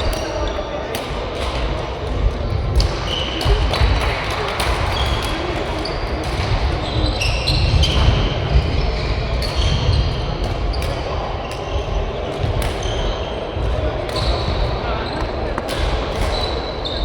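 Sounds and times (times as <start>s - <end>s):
shoes squeaking on court floor: 10.7s - 17.0s
racket hitting shuttlecock: 15.2s - 16.6s.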